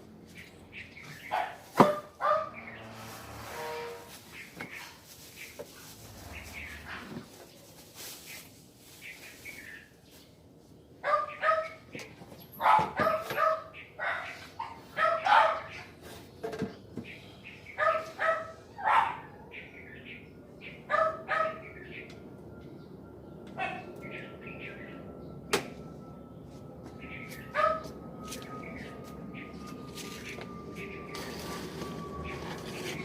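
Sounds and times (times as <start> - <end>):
dog barking: 1.3 - 2.6, 11.0 - 11.8, 12.6 - 15.9, 17.8 - 19.4, 20.9 - 21.7, 23.6 - 23.9, 27.6 - 27.9.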